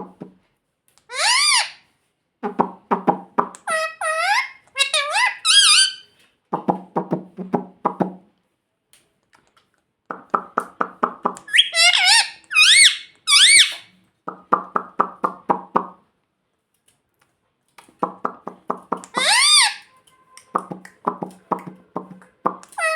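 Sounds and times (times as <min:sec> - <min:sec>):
parakeet high wavering calls: 0:01.1 - 0:01.8, 0:03.7 - 0:06.0, 0:11.5 - 0:13.9, 0:19.0 - 0:19.9
parakeet clucking: 0:02.4 - 0:06.0, 0:10.1 - 0:16.0, 0:18.0 - 0:22.9.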